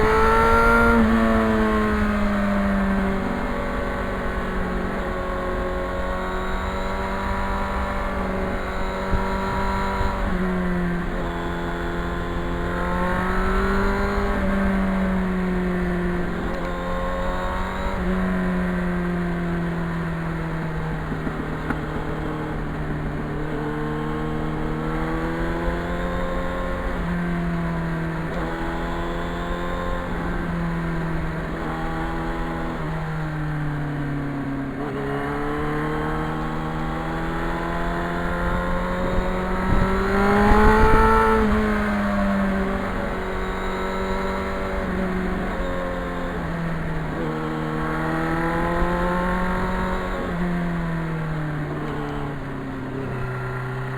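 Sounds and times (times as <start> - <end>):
motorcycle engine revving: 0.0 - 53.9
low wind rumble: 36.4 - 53.7.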